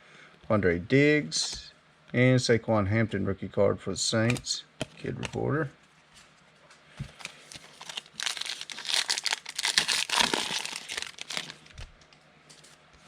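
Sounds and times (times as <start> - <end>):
foil wrapper crinkling: 7.2 - 11.9.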